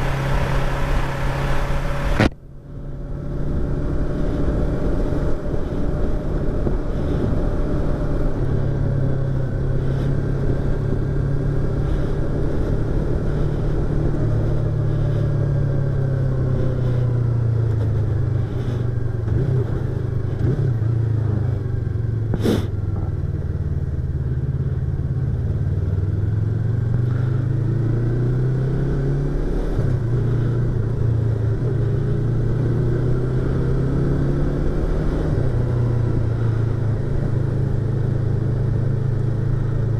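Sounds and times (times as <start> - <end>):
motorcycle engine and exhaust: 0.0 - 39.9
wind rush: 3.3 - 19.5.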